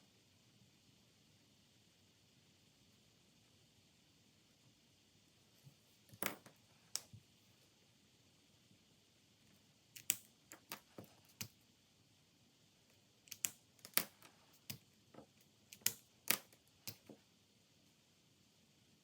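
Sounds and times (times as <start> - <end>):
small clicks and taps on desk: 10.0 - 11.6, 13.3 - 17.2.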